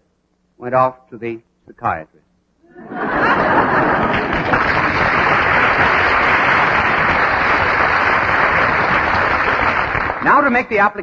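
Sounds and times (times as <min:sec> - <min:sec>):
audience applauding: 0:02.9 - 0:10.9.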